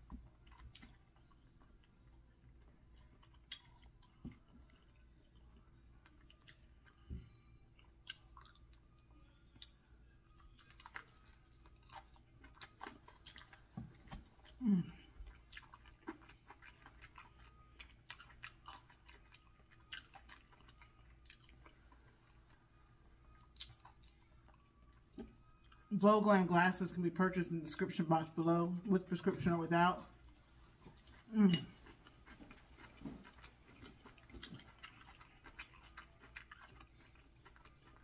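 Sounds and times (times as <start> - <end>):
person humming: 14.6 - 15.1
crunching fried chicken: 32.2 - 38.0.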